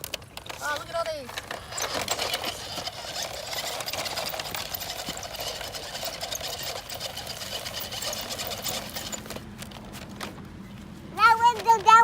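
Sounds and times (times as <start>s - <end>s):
toy truck motor whirring: 0.0s - 9.4s
wheels crackling over ground: 0.0s - 12.0s.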